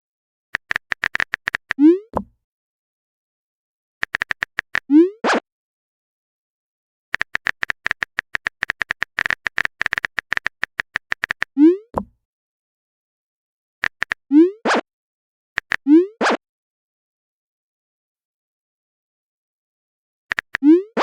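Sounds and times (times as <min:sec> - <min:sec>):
typing clicks: 0:00.6 - 0:01.8, 0:04.0 - 0:04.9, 0:07.1 - 0:11.5, 0:13.8 - 0:14.2, 0:15.6 - 0:15.8, 0:20.3 - 0:20.7.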